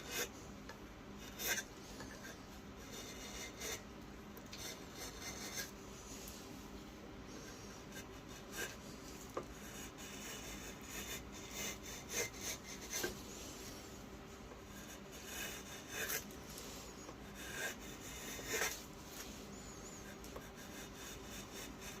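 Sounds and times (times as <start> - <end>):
knife rasping strokes: 4.6 - 5.8, 7.4 - 13.8, 14.7 - 22.0.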